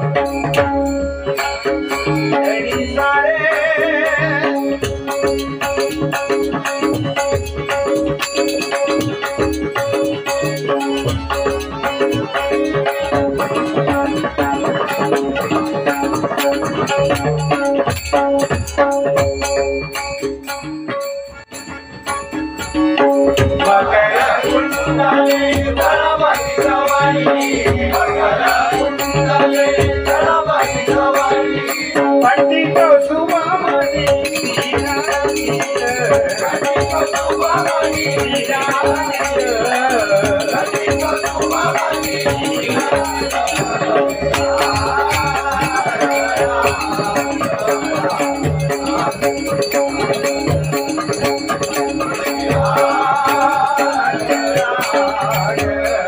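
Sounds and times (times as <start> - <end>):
drum strokes: 0.0 - 56.0
jingling percussion: 0.0 - 56.0.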